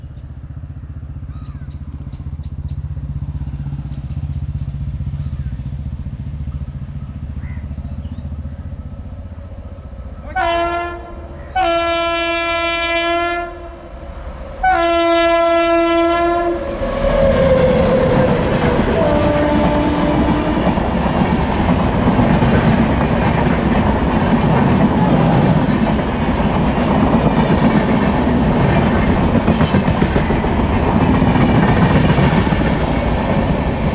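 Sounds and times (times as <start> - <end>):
train horn blasts: 10.3 - 21.0
train wheels clattering: 17.1 - 33.9.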